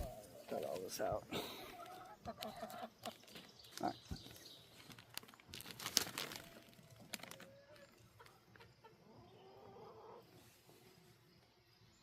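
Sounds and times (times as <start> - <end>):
material crinkling and rustling: 4.2 - 8.0.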